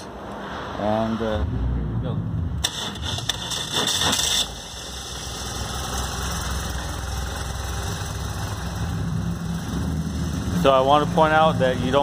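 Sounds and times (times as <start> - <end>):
motorcycle engine idling: 5.0 - 10.4.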